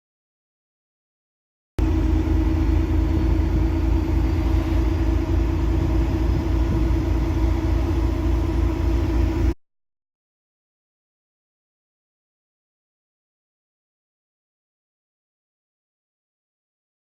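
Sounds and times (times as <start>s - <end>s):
diesel engine running: 1.8s - 9.6s.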